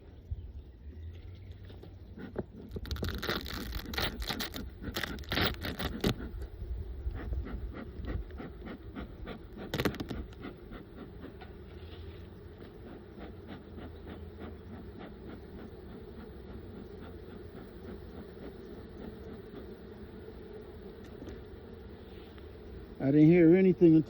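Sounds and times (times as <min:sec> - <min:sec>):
hive tool scraping wood: 0:01.7 - 0:06.5, 0:07.1 - 0:21.4.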